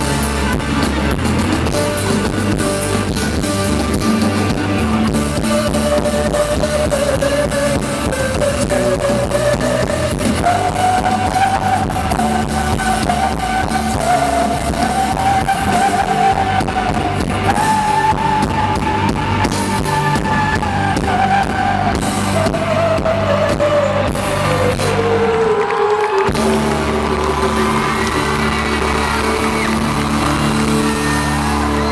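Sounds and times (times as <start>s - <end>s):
live rock band playing: 0.0s - 31.9s
bending melody line: 26.3s - 31.9s.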